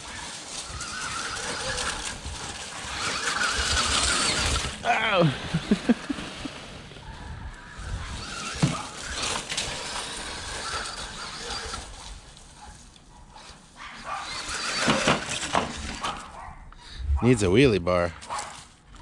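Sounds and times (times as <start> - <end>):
rc truck motor whine: 0.0 - 4.8, 7.5 - 16.4
tyre noise: 0.0 - 12.9.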